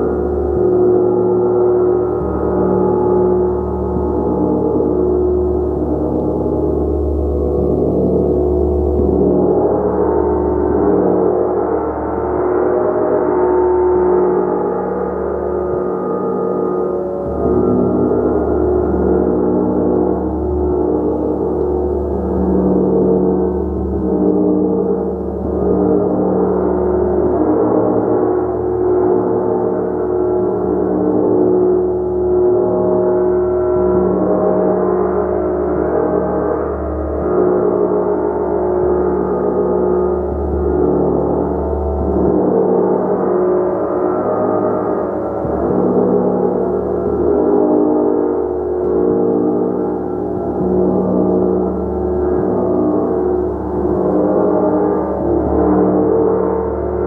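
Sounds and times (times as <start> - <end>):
gong played continuously: 0.0 - 57.0
gong ringing: 15.2 - 24.2.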